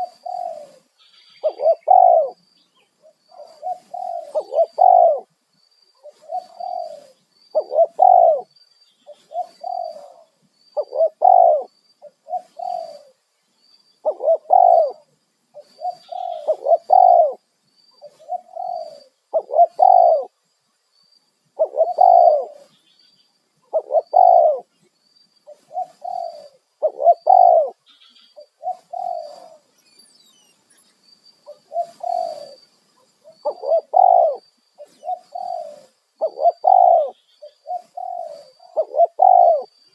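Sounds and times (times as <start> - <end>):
dove cooing: 0.0 - 2.4, 3.0 - 5.3, 6.0 - 8.5, 9.1 - 13.2, 14.0 - 17.4, 18.0 - 20.4, 21.6 - 22.8, 23.7 - 24.7, 25.5 - 29.7, 31.5 - 32.6, 33.2 - 39.8
faint high chirp: 0.0 - 39.9.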